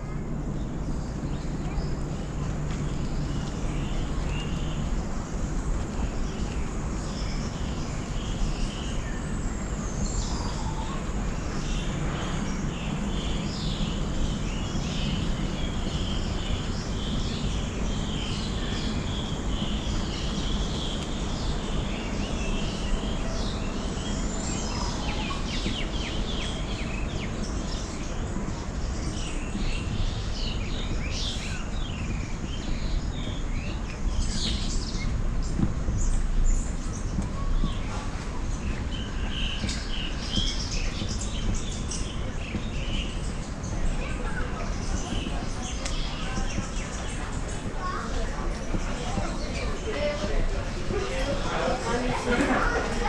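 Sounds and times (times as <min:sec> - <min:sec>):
low background noise: 0:00.0 - 0:53.0
birds chirping and calling: 0:09.8 - 0:53.0.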